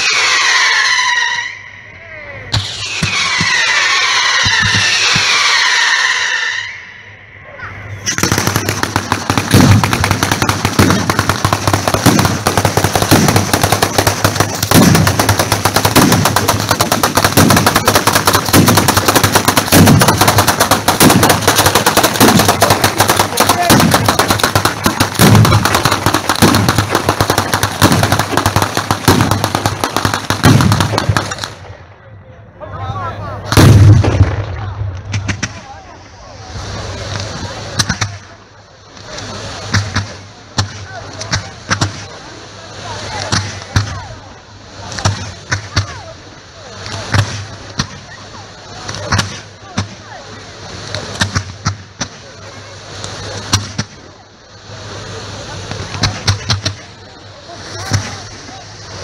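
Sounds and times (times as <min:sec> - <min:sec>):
fireworks cracking and banging: 0:02.5 - 0:06.3, 0:08.0 - 0:31.8, 0:33.4 - 0:44.2, 0:44.8 - 0:59.0
deep firework boom: 0:08.0 - 0:31.6, 0:33.4 - 0:35.9.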